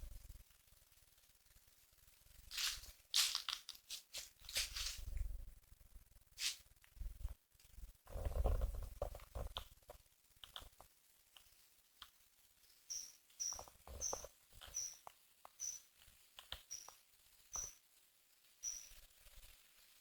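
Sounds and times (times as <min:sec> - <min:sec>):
rustling: 0:02.3 - 0:05.6, 0:06.3 - 0:07.4
short high chirps: 0:12.9 - 0:15.0, 0:15.6 - 0:15.8, 0:18.6 - 0:19.0.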